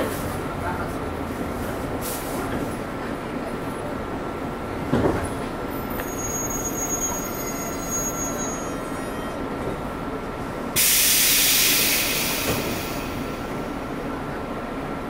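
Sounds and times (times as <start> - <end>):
electric train rumble and whine: 0.2 - 15.0
compressed air hiss: 10.8 - 13.4.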